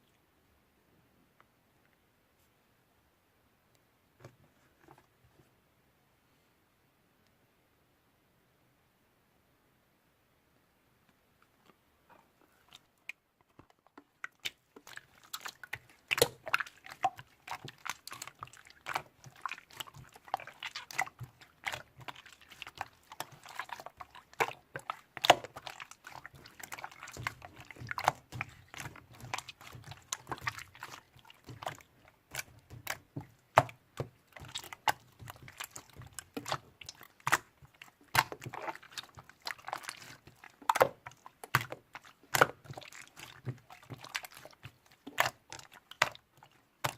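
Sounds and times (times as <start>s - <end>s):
slime clicking and popping: 15.7s - 16.5s.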